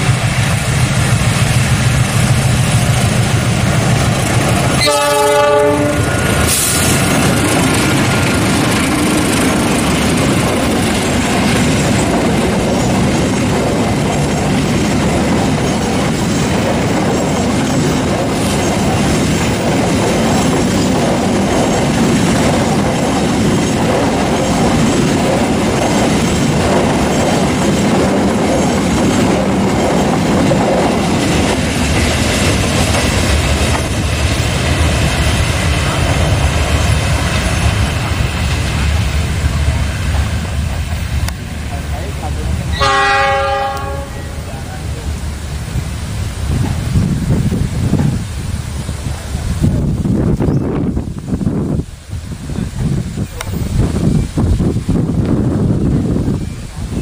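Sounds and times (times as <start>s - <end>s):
train wheels clattering over rails: 0.0s - 51.0s
diesel locomotive engine running: 0.0s - 57.0s
freight wagons rumbling: 0.0s - 57.0s
train horn blast: 4.7s - 6.7s, 42.7s - 44.5s.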